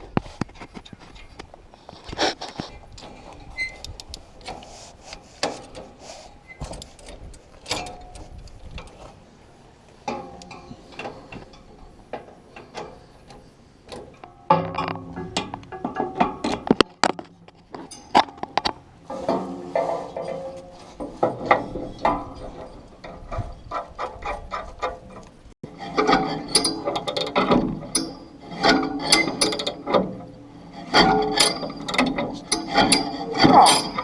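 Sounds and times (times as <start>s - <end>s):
hand tools clicking and ratcheting: 3.0s - 9.1s, 20.1s - 34.0s.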